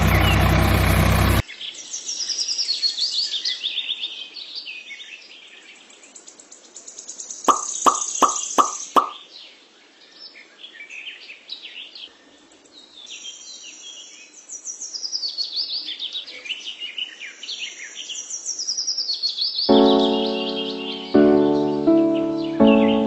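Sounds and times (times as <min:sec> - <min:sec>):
songbirds chirping: 0:00.0 - 0:23.0
plop: 0:07.5 - 0:09.2.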